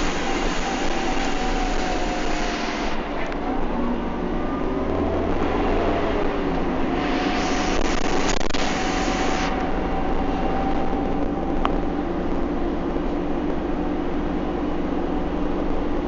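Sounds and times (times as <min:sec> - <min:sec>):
high-pitched hiss: 0:00.0 - 0:03.1, 0:07.0 - 0:09.7
bus engine running: 0:00.0 - 0:16.0.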